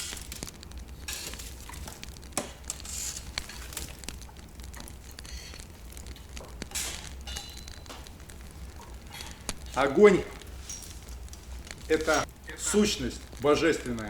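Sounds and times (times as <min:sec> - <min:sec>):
hissing flares: 0:00.0 - 0:14.0
wood fire crackling: 0:00.0 - 0:14.0.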